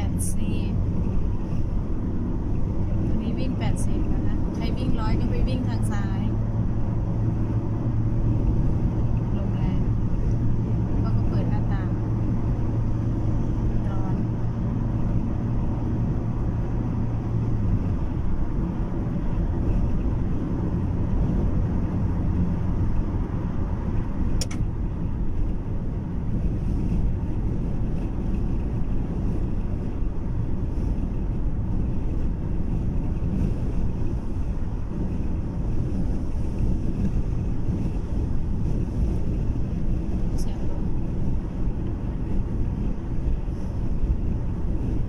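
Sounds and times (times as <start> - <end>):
low hum: 0.0 - 45.0
road and engine rumble: 0.0 - 45.0
wind against car: 0.0 - 45.0
brief click: 24.4 - 24.6.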